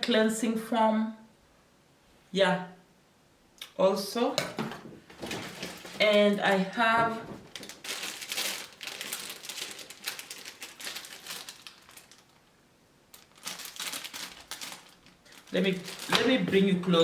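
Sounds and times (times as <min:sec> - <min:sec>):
packaging crinkling and rustling: 0:04.7 - 0:17.0.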